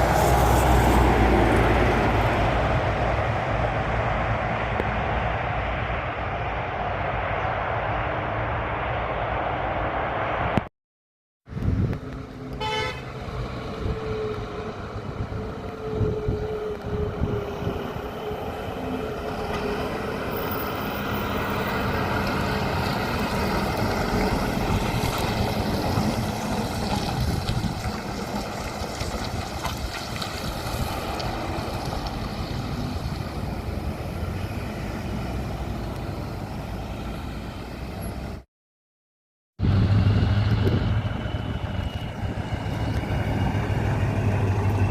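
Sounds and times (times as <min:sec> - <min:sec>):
heavy truck driving past: 0:00.0 - 0:10.6, 0:39.6 - 0:44.9
truck horn toot: 0:12.5 - 0:13.2.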